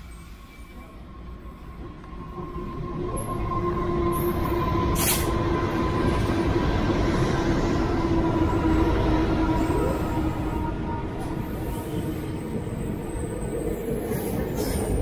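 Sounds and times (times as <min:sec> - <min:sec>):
diesel locomotive engine rumble: 0:00.0 - 0:15.0
sharp air hiss: 0:05.0 - 0:05.4.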